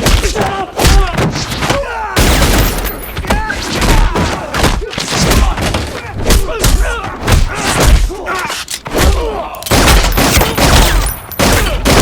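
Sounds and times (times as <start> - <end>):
gunshots: 0.0 - 8.1, 9.0 - 12.0.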